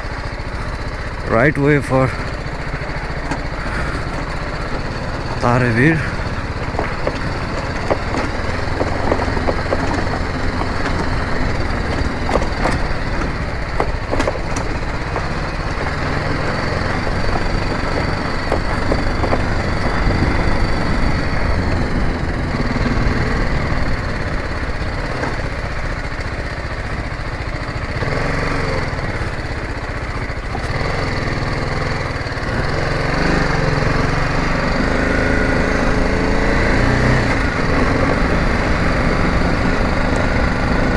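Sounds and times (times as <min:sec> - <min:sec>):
motorcycle engine running: 0:00.0 - 0:40.9
sharp knocks from bumps: 0:02.1 - 0:26.3, 0:28.0 - 0:40.9.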